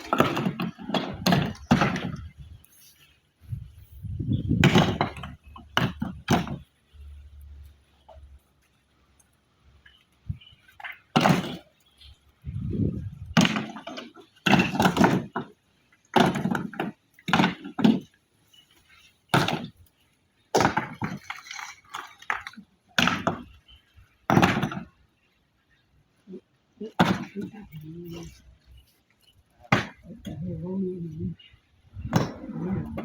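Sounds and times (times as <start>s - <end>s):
stone pieces knocking and crashing: 0.0s - 2.4s, 4.5s - 6.7s, 10.7s - 11.8s, 12.8s - 18.1s, 19.3s - 19.9s, 20.5s - 23.6s, 24.3s - 25.0s, 29.7s - 30.3s.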